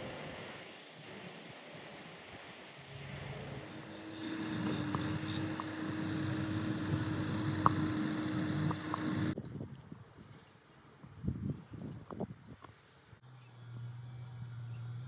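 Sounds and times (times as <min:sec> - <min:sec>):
vehicle engine humming: 0:03.5 - 0:09.4, 0:13.2 - 0:15.0.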